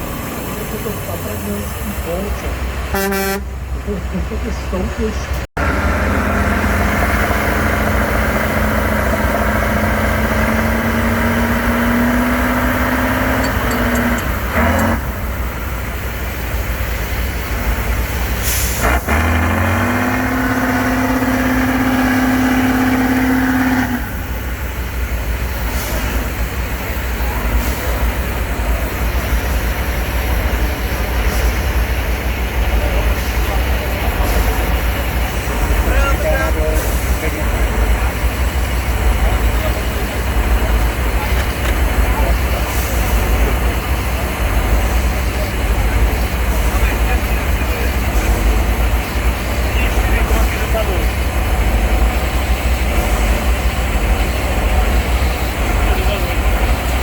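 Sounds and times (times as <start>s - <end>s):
diesel engine working hard: 0.0s - 57.0s.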